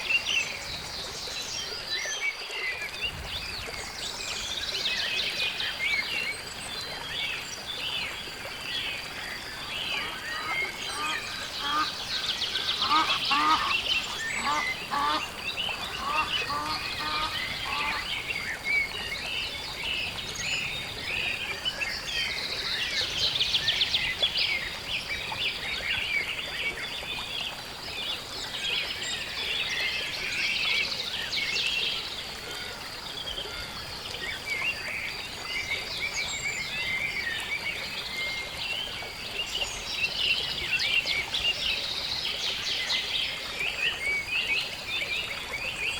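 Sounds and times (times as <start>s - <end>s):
small birds chirping and trilling: 0.0s - 32.1s
waterfowl honking: 10.0s - 11.9s, 12.8s - 15.2s, 16.0s - 18.1s.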